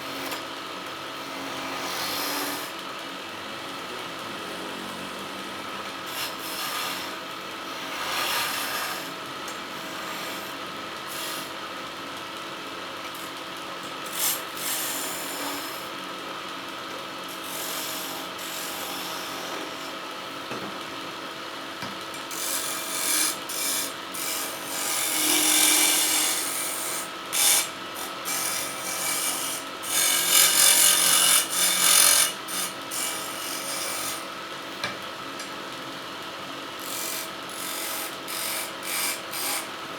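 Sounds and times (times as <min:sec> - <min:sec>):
wood lathe motor running: 0:00.0 - 0:11.6, 0:14.1 - 0:16.0, 0:17.4 - 0:20.0, 0:21.8 - 0:34.4, 0:35.8 - 0:39.9
tool rasping on spinning wood: 0:03.8 - 0:07.2, 0:22.3 - 0:34.2.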